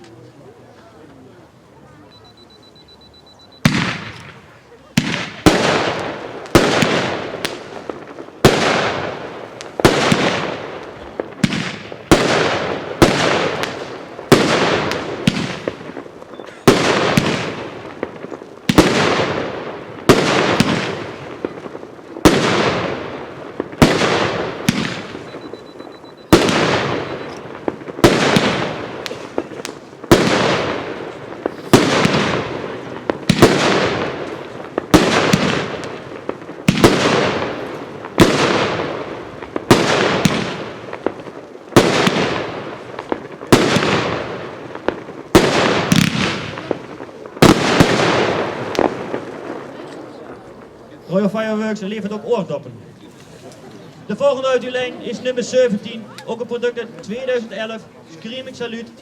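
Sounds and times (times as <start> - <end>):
firework cake bangs: 3.6 - 50.7.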